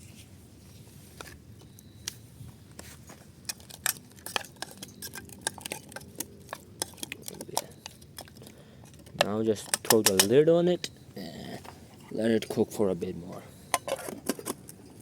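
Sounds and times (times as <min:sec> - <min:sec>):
spoon scraping a cooking pan: 0:03.5 - 0:08.4.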